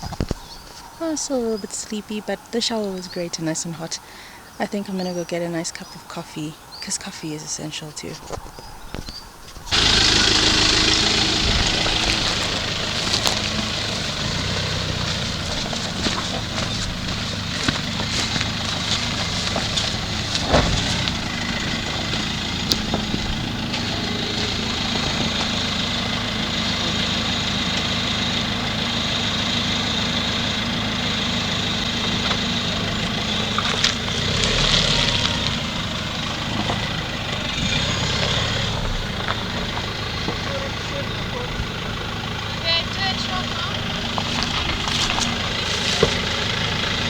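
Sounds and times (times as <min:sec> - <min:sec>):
motor idling: 0:09.6 - 0:47.0.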